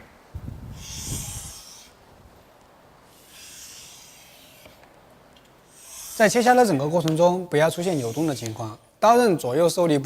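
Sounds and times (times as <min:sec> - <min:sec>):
bench plane shaving wood: 0:03.2 - 0:04.8, 0:07.8 - 0:08.7.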